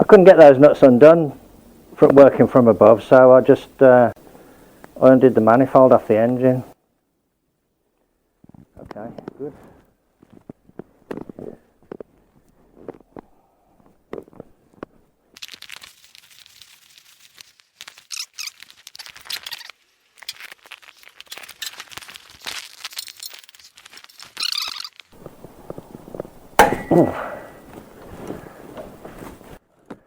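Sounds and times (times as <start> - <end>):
rustling and scraping: 21.1 - 29.6
sharp clank: 26.6 - 27.8.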